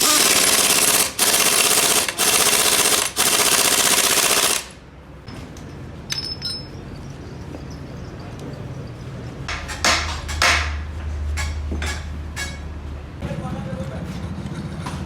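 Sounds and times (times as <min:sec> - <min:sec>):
impact wrench rattling: 0:00.0 - 0:04.7
light metal clinks: 0:06.0 - 0:09.4.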